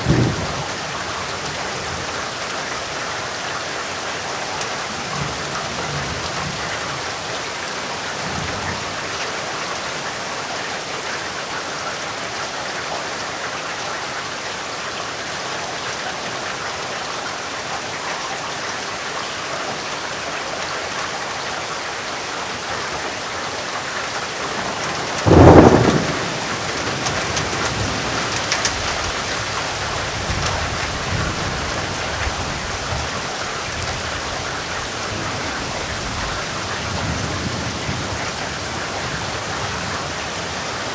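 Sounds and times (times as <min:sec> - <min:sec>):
thunderclap: 0:00.0 - 0:01.0, 0:24.6 - 0:29.5
low rolling thunder: 0:00.0 - 0:02.2, 0:24.4 - 0:40.6
rain falling: 0:00.0 - 0:40.9.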